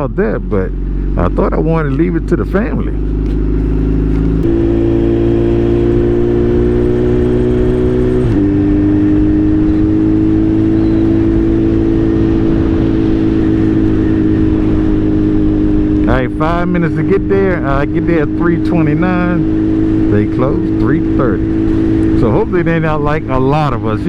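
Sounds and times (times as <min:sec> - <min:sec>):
motorcycle engine pulling: 0:00.7 - 0:24.0
wind rush: 0:03.0 - 0:18.0.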